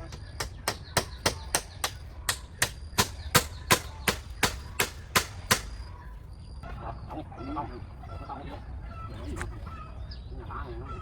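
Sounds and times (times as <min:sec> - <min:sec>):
hand tool chopping blows: 0:00.0 - 0:05.8.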